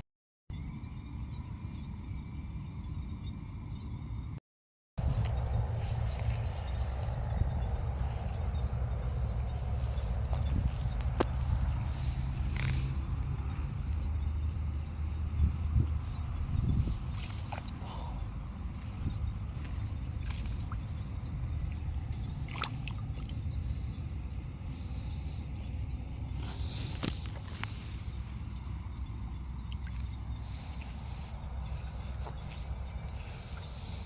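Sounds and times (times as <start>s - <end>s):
low rumble: 5.0s - 17.3s
high-pitched insect trill: 5.0s - 34.0s.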